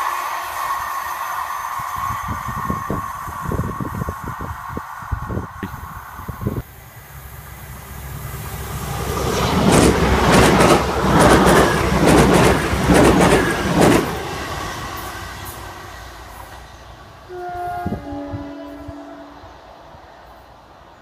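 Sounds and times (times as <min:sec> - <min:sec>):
diesel train engine: 0:00.0 - 0:21.0
train wheels clicking over track: 0:08.8 - 0:17.2.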